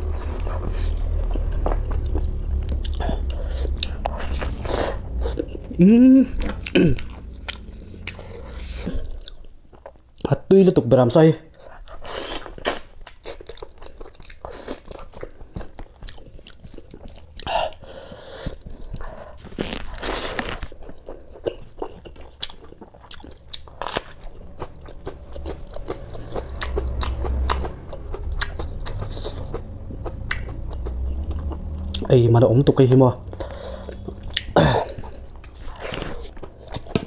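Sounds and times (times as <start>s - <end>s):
wet chewing: 0.0s - 10.3s, 11.5s - 32.2s, 33.2s - 37.0s
crisp crunching bites: 19.3s - 20.9s.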